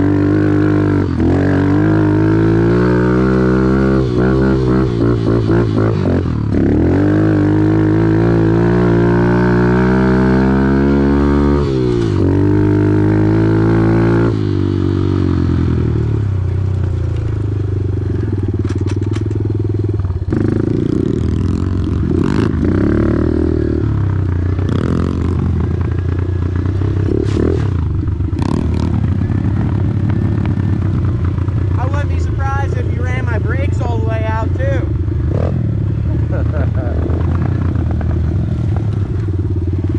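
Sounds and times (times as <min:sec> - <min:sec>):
motorcycle engine revving: 0:00.0 - 0:39.9
clicks and clatter: 0:18.6 - 0:19.5.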